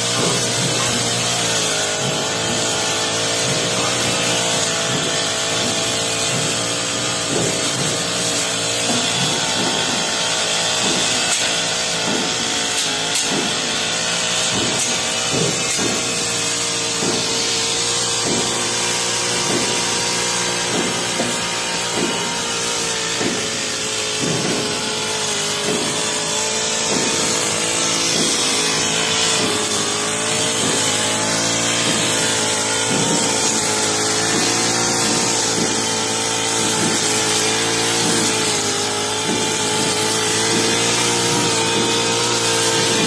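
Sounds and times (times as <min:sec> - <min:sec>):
brush cutter running: 0:00.0 - 0:43.0.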